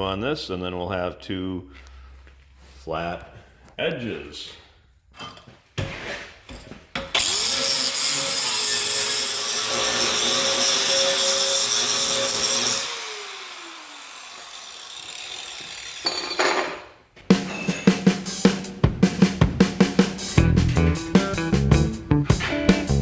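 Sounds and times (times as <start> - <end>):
power grinder grinding steel: 7.1 - 16.1.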